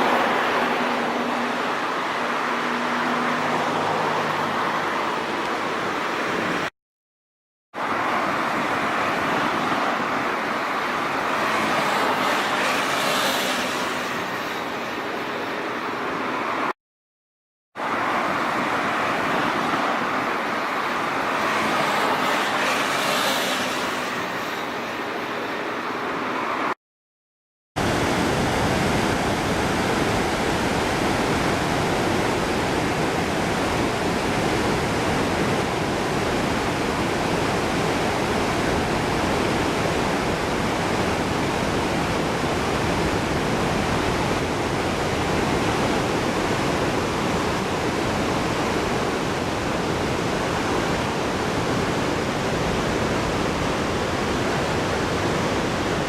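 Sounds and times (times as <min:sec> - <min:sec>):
fast-flowing river rushing: 0:00.0 - 0:06.7, 0:07.8 - 0:16.7, 0:17.8 - 0:26.8, 0:27.8 - 0:56.0.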